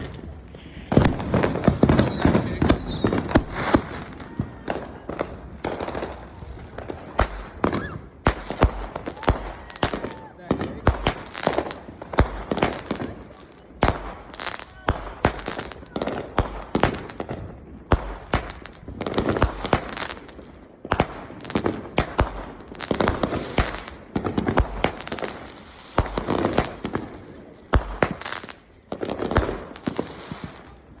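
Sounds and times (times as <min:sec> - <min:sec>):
firework bangs and crackling: 0:00.0 - 0:31.0.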